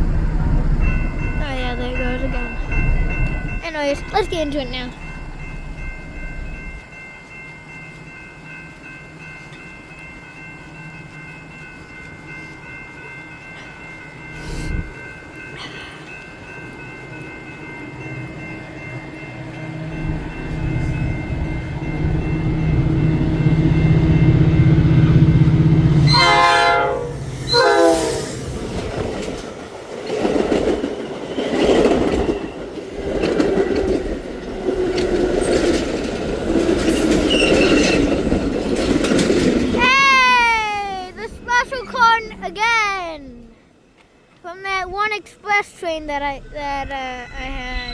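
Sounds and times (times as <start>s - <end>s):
diesel train engine drone: 0.0s - 47.9s
train horn sliding down: 26.0s - 28.3s
wheels clattering over rail joints: 28.4s - 39.9s.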